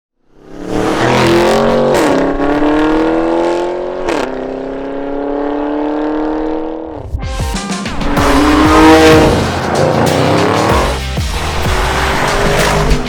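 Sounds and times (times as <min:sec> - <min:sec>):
car engine accelerating hard: 0:00.3 - 0:07.0, 0:07.9 - 0:13.0
sharp exhaust crack: 0:07.8 - 0:13.0.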